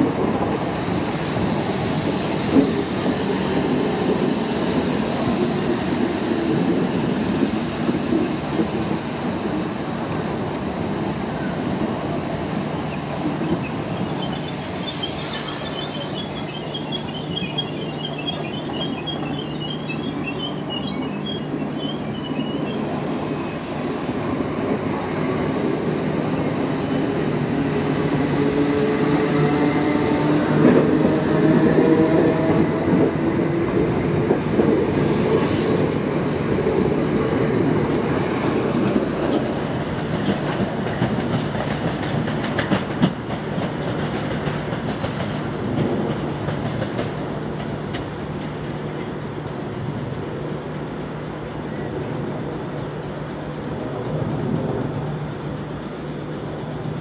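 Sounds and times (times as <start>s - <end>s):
train rumbling on rails: 0.0s - 57.0s
high wheel squeals: 12.9s - 23.6s.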